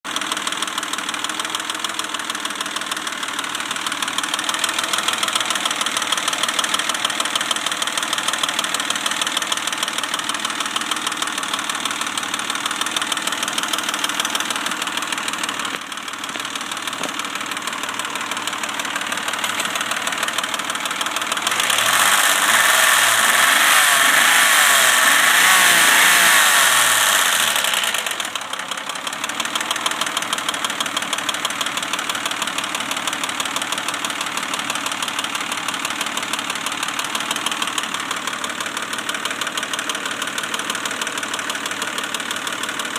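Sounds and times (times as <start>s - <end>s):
car engine running: 0.1s - 42.9s
fast clicking from engine: 18.8s - 42.9s.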